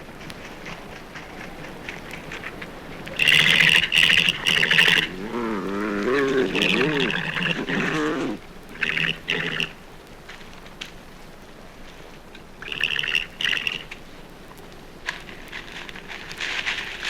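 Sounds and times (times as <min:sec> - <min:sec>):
badger low purring call: 0:00.8 - 0:09.8
badgers squealing chatter: 0:02.6 - 0:09.8.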